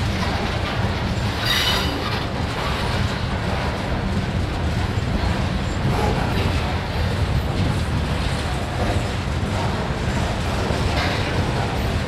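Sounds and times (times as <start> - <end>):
freight train rumbling past: 0.0 - 12.0
wheels squealing on rail: 0.4 - 3.2.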